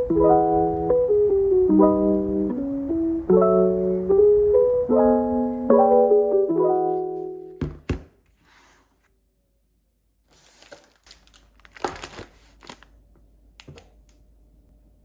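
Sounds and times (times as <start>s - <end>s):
crinkling rustling handling noise: 10.3s - 13.0s.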